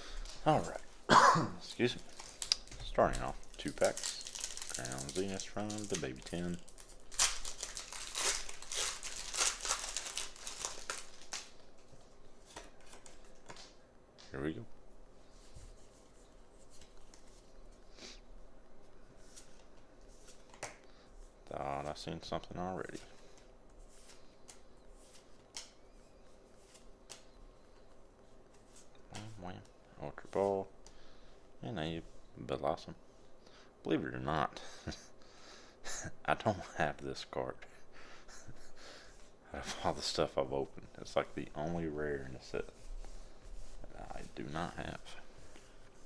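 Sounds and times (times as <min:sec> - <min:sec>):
foil wrapper crinkling and tearing: 0:02.0 - 0:11.6.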